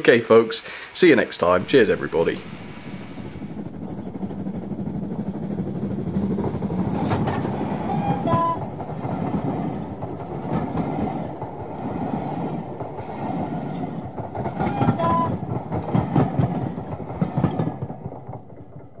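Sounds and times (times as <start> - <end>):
train rushing past: 0.1 - 19.0
brief high tone: 7.8 - 8.6, 14.6 - 15.4.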